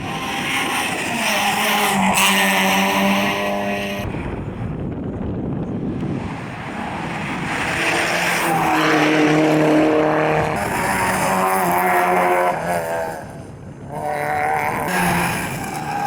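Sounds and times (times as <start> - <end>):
rally car engine high revs: 0.0 - 4.0, 6.8 - 16.0.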